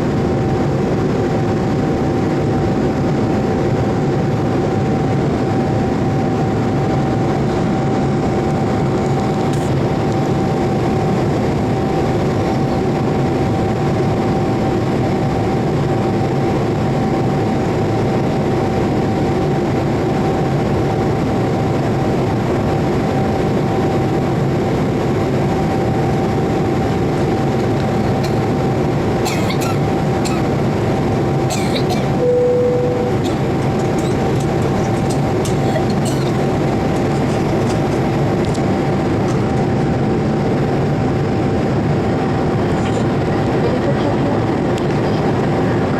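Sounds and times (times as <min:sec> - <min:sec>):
airplane engine and airflow rush: 0:00.0 - 0:45.9
constant whine-like tone: 0:00.0 - 0:45.9.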